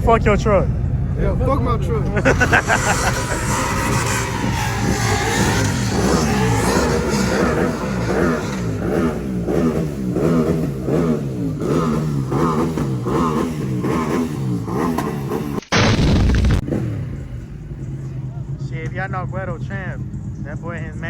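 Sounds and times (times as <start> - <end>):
car engine revving: 0.0 - 20.9
loud burst: 0.8 - 8.0, 15.6 - 17.2.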